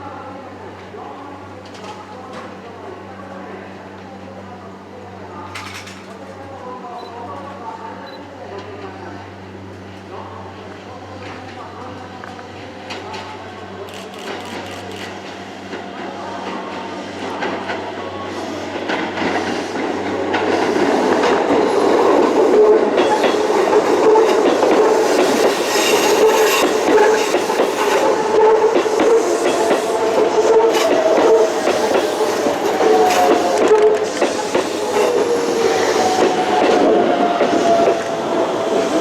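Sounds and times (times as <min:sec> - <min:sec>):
train whine: 0:09.3 - 0:39.0
train wheels clacking: 0:18.8 - 0:39.0.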